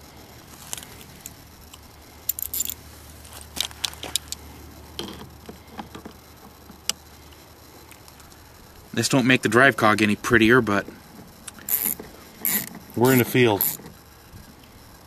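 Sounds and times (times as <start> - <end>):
faint steady hum: 0.0 - 15.0
small metal parts clinking: 2.2 - 4.4, 11.5 - 13.9.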